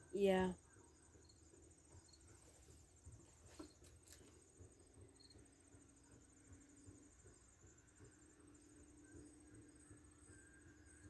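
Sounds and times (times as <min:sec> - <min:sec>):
insects chirping trill: 0:00.0 - 0:11.0.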